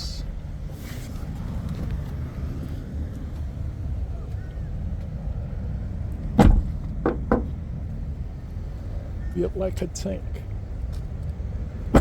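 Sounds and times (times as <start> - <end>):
low outdoor rumble: 0.0 - 12.0
loud thump: 6.4 - 7.5.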